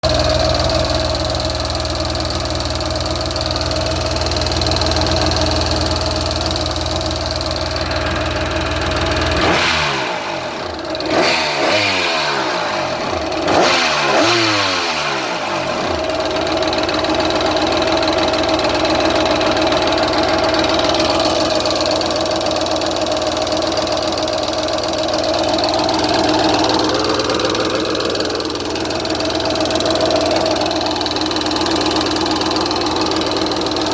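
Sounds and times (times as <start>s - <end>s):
engine running and revving: 7.7s - 33.9s.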